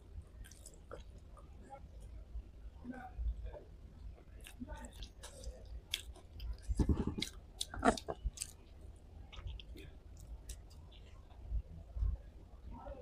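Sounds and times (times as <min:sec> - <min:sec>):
close chewing with mouth clicks: 0:00.4 - 0:01.6, 0:04.2 - 0:11.2.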